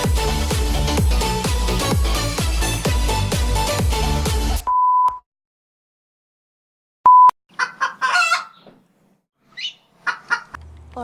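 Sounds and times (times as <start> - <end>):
electronic dance music: 0.0 - 4.6
hen clucking and squawking: 7.5 - 8.8, 9.5 - 10.6.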